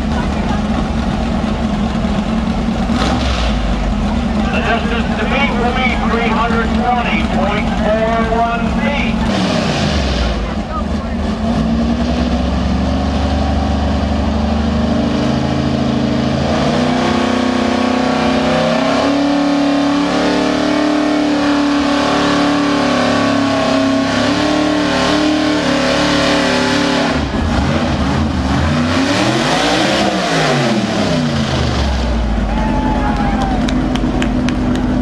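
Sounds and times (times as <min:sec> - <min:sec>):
truck engine revving under load: 0:00.0 - 0:35.0.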